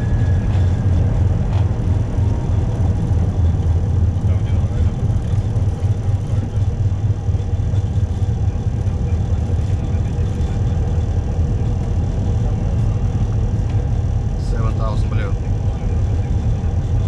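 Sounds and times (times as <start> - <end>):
low rumble of engine and airflow: 0.0 - 17.0.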